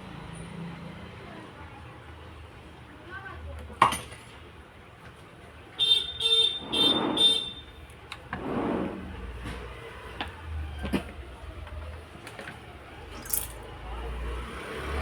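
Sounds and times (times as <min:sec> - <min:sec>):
vehicle horn beeping: 0:05.8 - 0:07.8.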